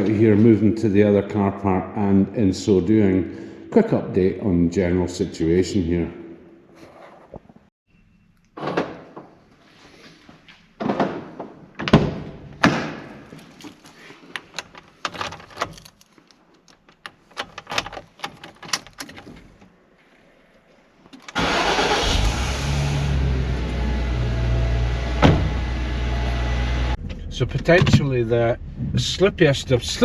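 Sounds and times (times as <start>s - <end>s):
car door thudding: 25.2s - 25.7s.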